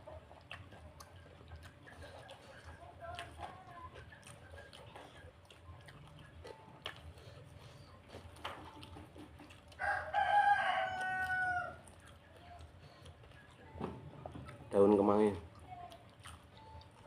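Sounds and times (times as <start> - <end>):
faint chewing of food: 0.0 - 17.0.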